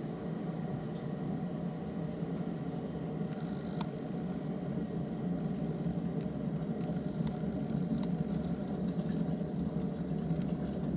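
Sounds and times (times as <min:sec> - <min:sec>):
low rumbling hum: 0:03.9 - 0:10.9.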